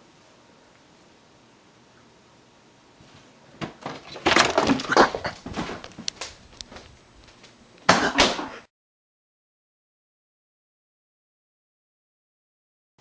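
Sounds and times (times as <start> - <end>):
cat scrambling and falling knocks: 3.6 - 6.8.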